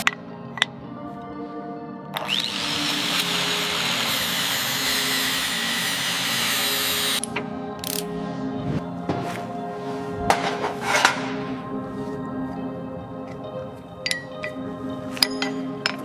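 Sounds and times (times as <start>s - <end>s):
background music: 0.0s - 16.0s
power tool whining and rushing: 2.2s - 7.2s.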